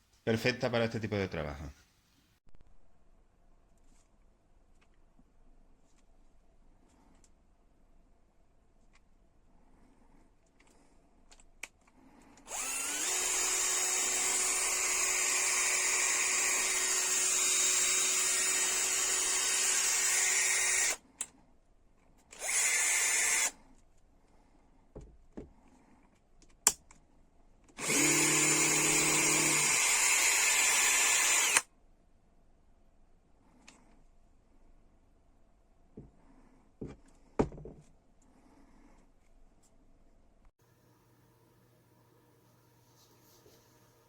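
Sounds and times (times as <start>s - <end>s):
cordless drill running: 12.5s - 21.0s, 22.4s - 23.6s, 27.8s - 31.7s.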